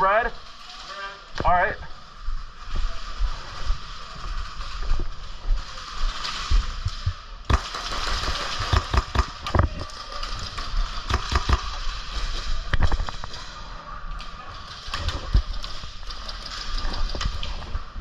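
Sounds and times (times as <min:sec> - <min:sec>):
airsoft guns firing: 0:03.6 - 0:13.3.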